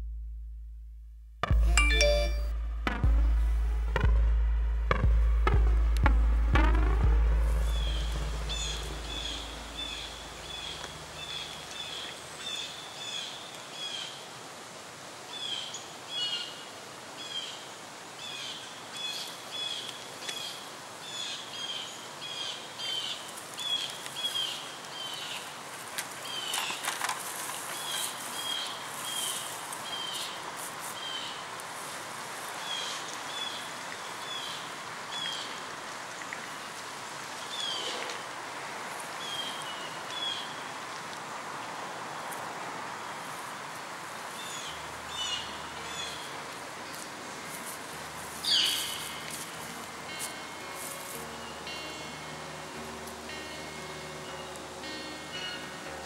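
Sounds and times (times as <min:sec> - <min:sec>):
low music tone: 0:00.0 - 0:12.0, 0:44.8 - 0:56.0
faint background hiss: 0:05.6 - 0:56.0
bird chirping: 0:06.6 - 0:13.2, 0:48.4 - 0:49.6.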